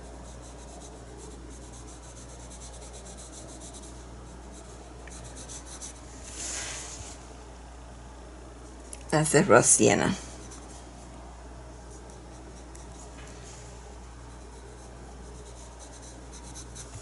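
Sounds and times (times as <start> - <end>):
paintbrush dabbing paint: 0.0 - 6.9, 10.3 - 17.0
low electrical hum: 0.0 - 17.0
paintbrush swipe: 5.7 - 7.2.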